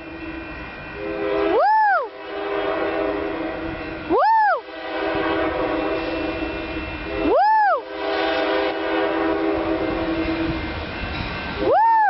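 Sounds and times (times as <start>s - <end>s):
locomotive horn chord: 0.0s - 10.8s
man shouting woo: 7.3s - 7.8s, 11.7s - 12.0s.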